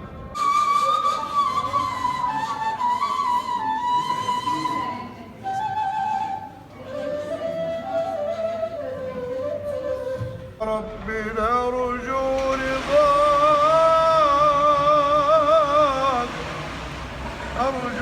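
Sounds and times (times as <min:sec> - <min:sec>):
slow flute melody: 0:00.3 - 0:10.7.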